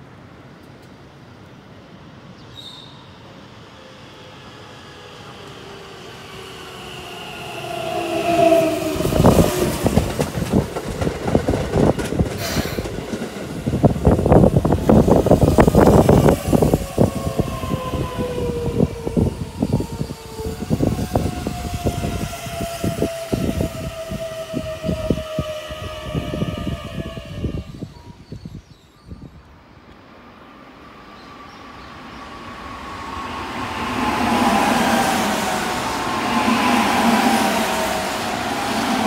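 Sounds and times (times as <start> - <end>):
train motor whine: 5.2 - 10.6
train wheels clacking: 8.3 - 16.4.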